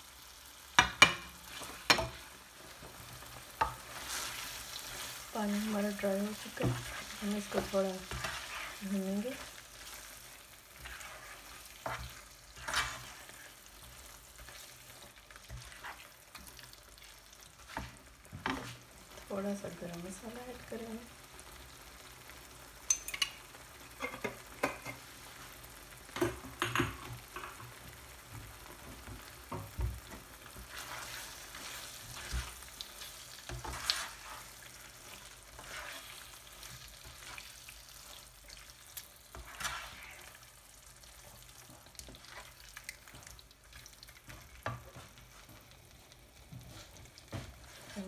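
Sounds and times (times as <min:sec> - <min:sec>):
food sizzling in a frying pan: 0:00.0 - 0:48.0
spoon knocking on pan: 0:00.8 - 0:02.2, 0:26.2 - 0:27.6
spoon stirring and scraping: 0:00.8 - 0:19.2, 0:22.9 - 0:25.0, 0:29.5 - 0:40.5, 0:41.2 - 0:45.7, 0:46.4 - 0:48.0.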